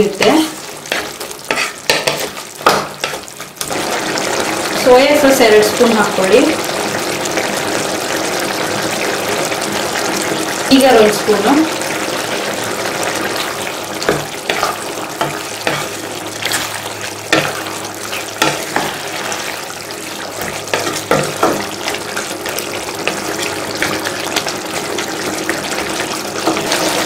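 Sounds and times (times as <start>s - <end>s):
sauce bubbling and sizzling: 0.0s - 27.0s
wooden spatula knocking: 0.2s - 3.2s, 14.0s - 15.9s, 17.3s - 17.7s, 18.4s - 19.0s, 20.4s - 21.8s.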